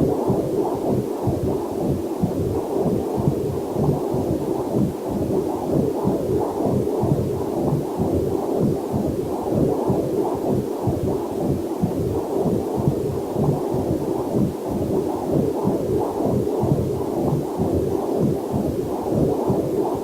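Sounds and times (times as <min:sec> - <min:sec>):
fetal heartbeat whooshing pulse: 0:00.0 - 0:20.0.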